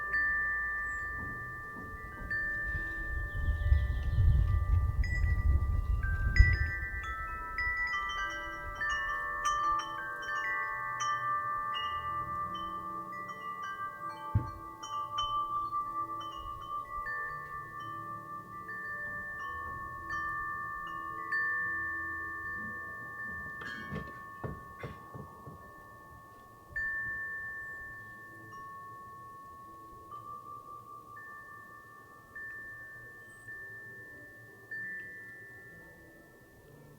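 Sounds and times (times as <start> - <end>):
low wind rumble: 0.0 - 28.5
metal wind chimes ringing: 0.0 - 36.9.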